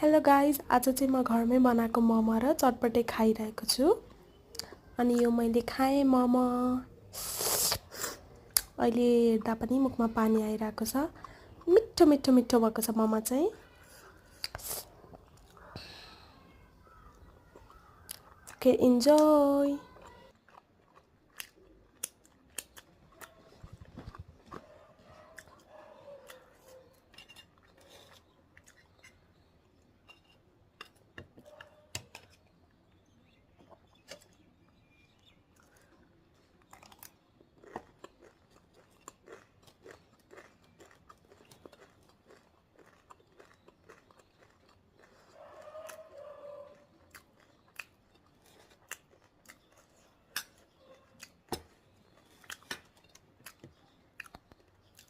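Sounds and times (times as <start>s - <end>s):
person chewing: 7.2s - 8.8s, 19.8s - 29.9s, 33.6s - 55.0s
crunches of snack: 19.2s - 24.6s, 35.5s - 55.0s.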